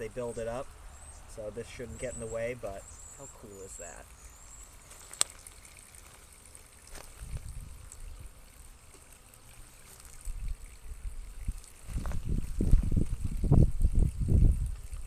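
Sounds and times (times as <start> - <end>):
wind buffeting microphone: 7.2 - 8.3, 10.3 - 15.0.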